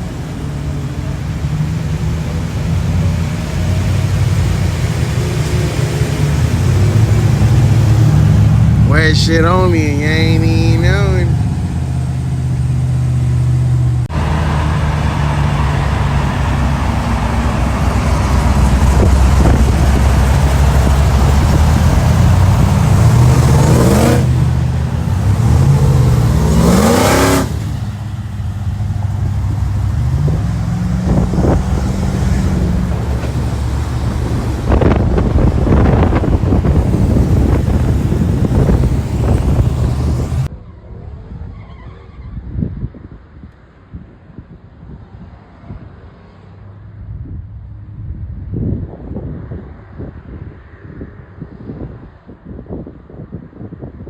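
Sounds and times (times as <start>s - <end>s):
car engine revving: 0.0s - 40.5s.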